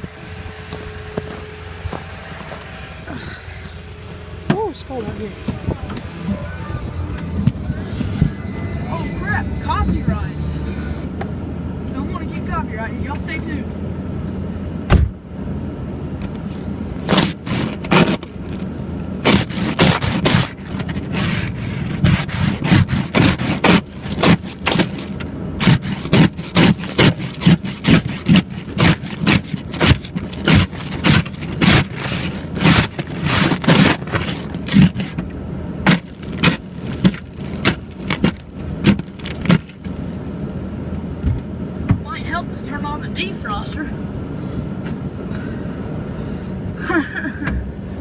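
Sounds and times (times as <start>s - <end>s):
ice scraper scraping windshield: 0.0s - 10.8s, 16.2s - 40.4s
truck engine idling: 0.0s - 48.0s.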